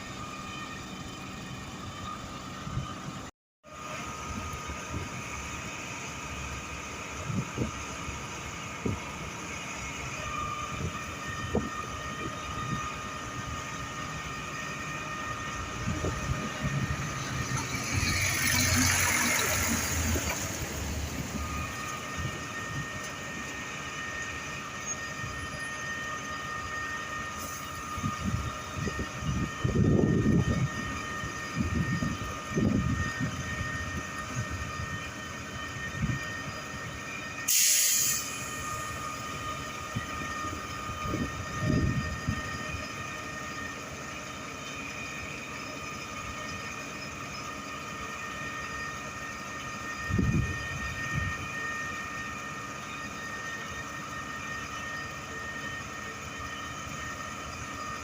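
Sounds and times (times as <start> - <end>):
concrete pump whining: 0.0 - 58.0
pump hissing: 37.5 - 38.7.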